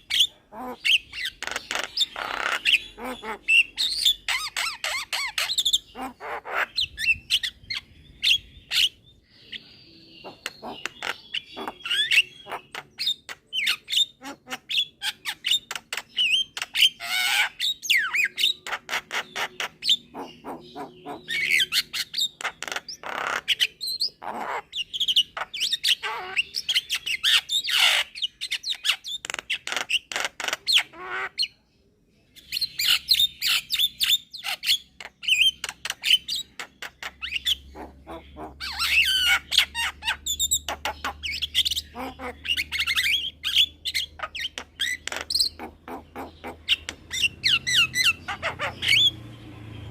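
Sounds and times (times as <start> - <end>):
myna squawking and whistling: 37.2 - 49.2.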